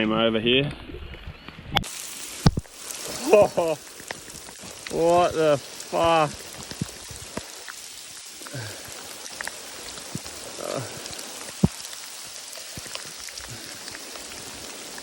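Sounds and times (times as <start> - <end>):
heavy rain hissing: 1.8 - 15.0
drops ticking close by: 1.9 - 15.0.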